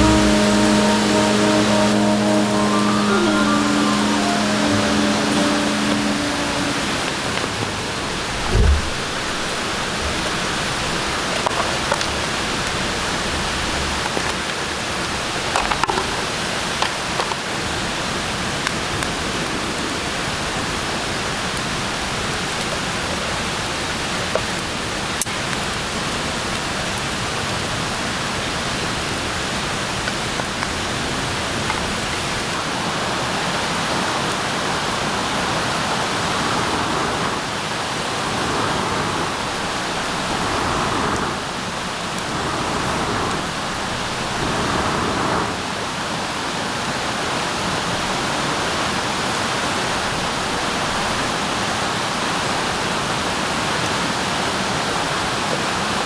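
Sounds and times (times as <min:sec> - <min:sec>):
steady hiss: 0:00.0 - 0:10.6.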